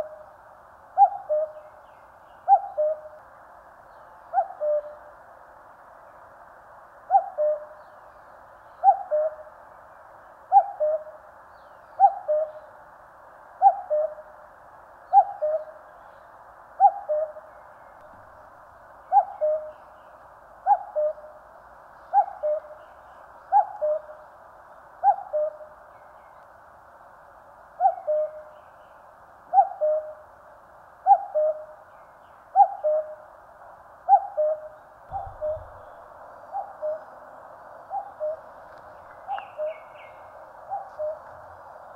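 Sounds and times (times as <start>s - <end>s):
cuckoo calling: 1.0s - 1.7s, 2.4s - 3.2s, 4.3s - 5.0s, 7.1s - 7.8s, 8.8s - 9.5s, 10.5s - 11.2s, 12.0s - 12.7s, 13.6s - 14.3s, 15.1s - 15.8s, 16.8s - 17.5s, 19.1s - 19.8s, 20.6s - 21.4s, 22.1s - 22.8s, 23.5s - 24.2s, 25.0s - 25.7s, 27.8s - 28.5s, 29.5s - 30.2s, 31.0s - 31.8s, 32.5s - 33.2s, 34.1s - 37.2s, 37.9s - 38.5s, 39.2s - 41.3s.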